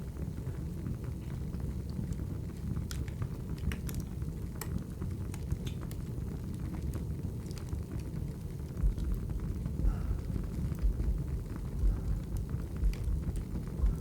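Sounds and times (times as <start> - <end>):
low rumble of fire: 0.0 - 14.0
firewood crackling and snapping: 2.5 - 9.7.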